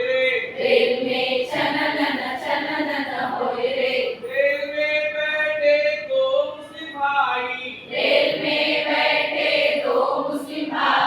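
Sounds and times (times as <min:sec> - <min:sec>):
group singing in unison: 0:00.6 - 0:04.2, 0:07.9 - 0:11.0.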